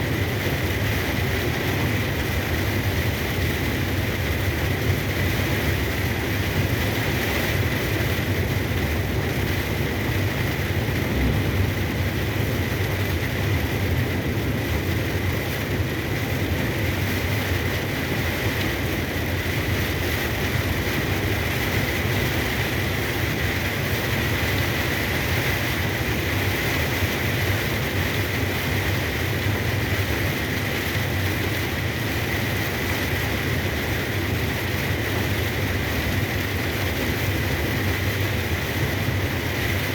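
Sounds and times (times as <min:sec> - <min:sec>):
truck engine drone: 0:00.0 - 0:25.5
heavy rain: 0:00.0 - 0:39.9
road noise: 0:00.0 - 0:39.9.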